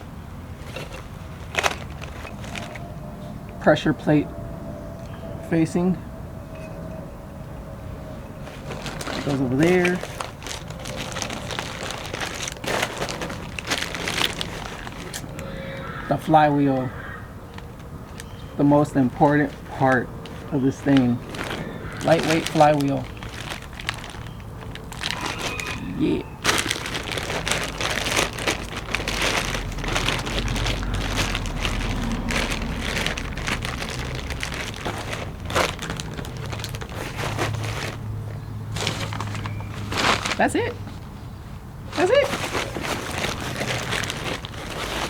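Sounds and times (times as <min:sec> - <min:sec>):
packaging crinkling: 0:00.0 - 0:03.0, 0:08.4 - 0:16.4, 0:17.0 - 0:41.1, 0:41.8 - 0:45.0
parts clicking and knocking: 0:00.6 - 0:02.9.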